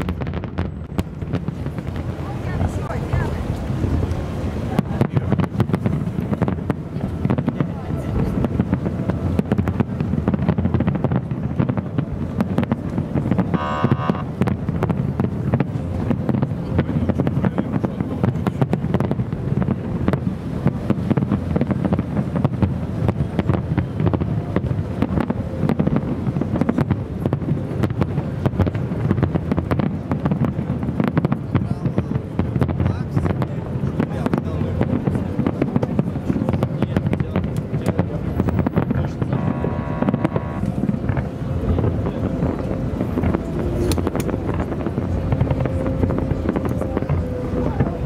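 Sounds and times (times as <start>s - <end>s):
fireworks bursting and crackling: 0.0s - 48.0s
wind on microphone: 0.0s - 48.0s
brief pitched tone: 13.6s - 14.3s.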